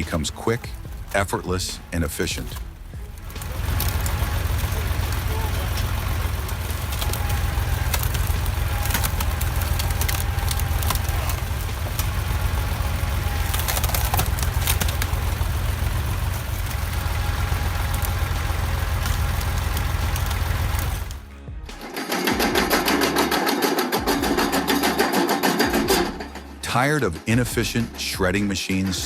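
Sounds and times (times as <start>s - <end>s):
engine running: 0.0s - 28.2s
sharp clicks and knocks: 2.5s - 21.2s.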